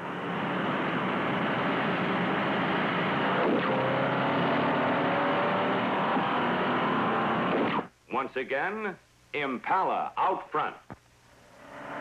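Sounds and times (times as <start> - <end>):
car engines accelerating hard: 0.0 - 7.8, 11.6 - 12.0.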